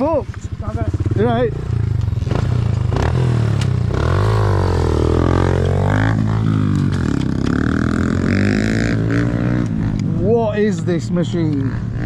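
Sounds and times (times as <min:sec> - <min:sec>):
motorbike engine revving: 0:00.0 - 0:12.0.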